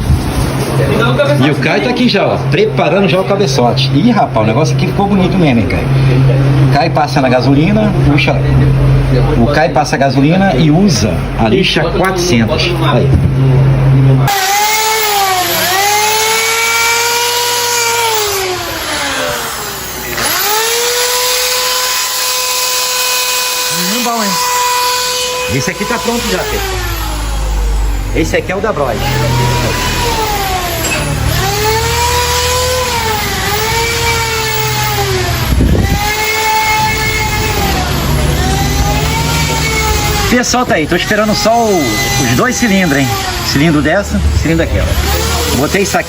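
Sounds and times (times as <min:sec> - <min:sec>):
power drill whining: 0:14.3 - 0:46.0.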